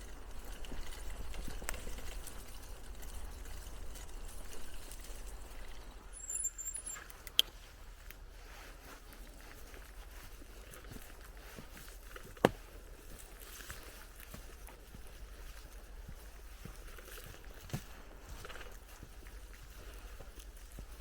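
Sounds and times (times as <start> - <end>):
wind rumble on microphone: 0.0 - 6.2
bicycle rattles and clicks: 0.0 - 7.5, 9.5 - 21.0
bicycle tyres rolling on path: 0.0 - 21.0.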